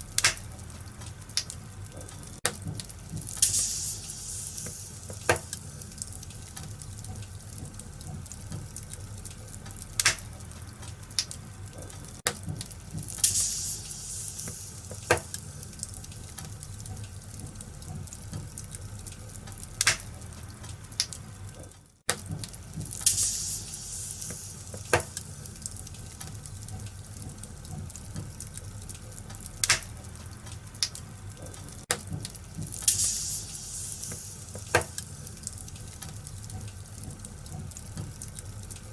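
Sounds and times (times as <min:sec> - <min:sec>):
hissing fire flare-ups: 0:00.0 - 0:11.9, 0:12.6 - 0:17.8, 0:22.2 - 0:31.0, 0:32.3 - 0:38.9
wood fire crackling and popping: 0:00.0 - 0:38.9.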